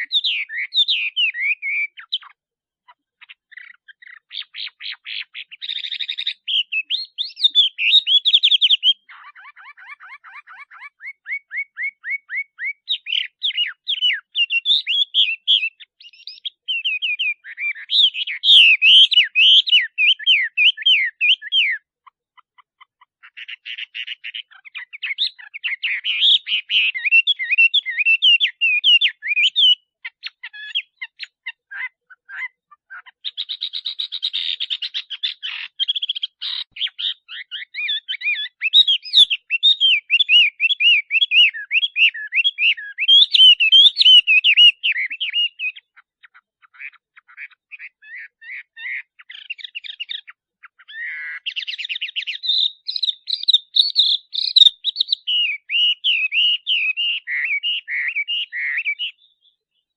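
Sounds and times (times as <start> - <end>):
bird singing whistled phrases: 0.0 - 2.4, 3.5 - 21.9, 23.4 - 31.3, 33.2 - 46.0, 47.8 - 59.9.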